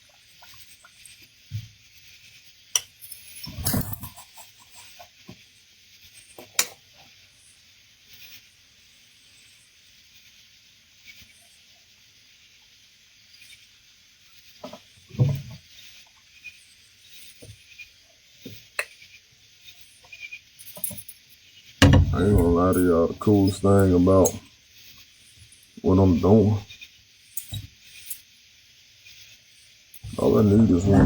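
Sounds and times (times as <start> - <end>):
faint high hiss: 0.0 - 31.0
low thump with rustle: 21.8 - 22.7.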